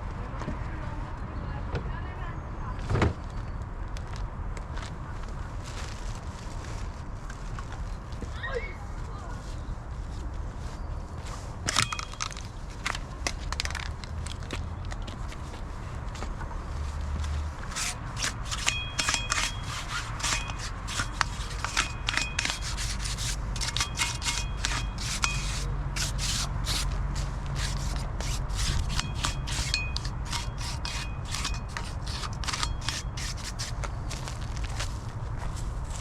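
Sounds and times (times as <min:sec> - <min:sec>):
hand-sanding metal: 0:17.6 - 0:33.9
short high squeaks: 0:17.7 - 0:33.8.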